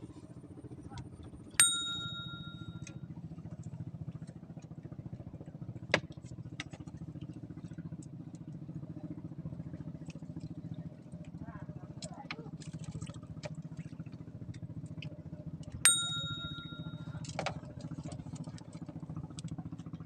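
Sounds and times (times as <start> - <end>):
small engine chugging: 0.0 - 20.0
sharp metallic ring: 1.6 - 2.9, 15.9 - 17.2.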